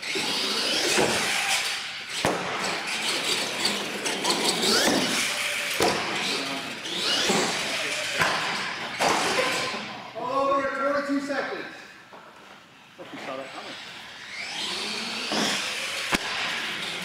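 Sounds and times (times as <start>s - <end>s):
toy truck motor whining: 0.0s - 2.2s, 2.8s - 8.2s, 13.4s - 17.0s.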